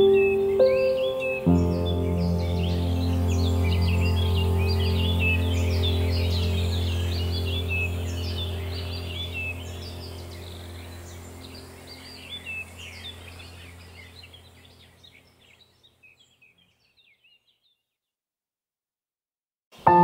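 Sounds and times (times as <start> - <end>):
small birds chirping: 0.0 - 18.2
low hum: 1.6 - 15.4.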